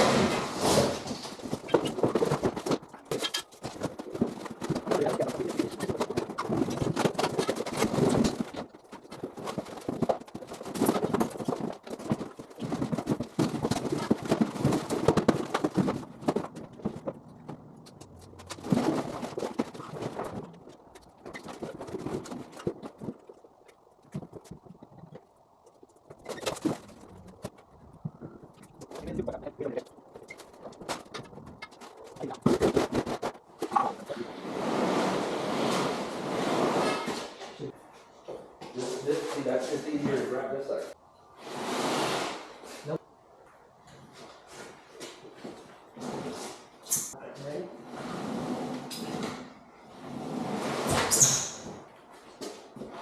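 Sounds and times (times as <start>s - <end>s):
junk clattering and scraping: 0.0s - 23.4s, 26.0s - 37.7s.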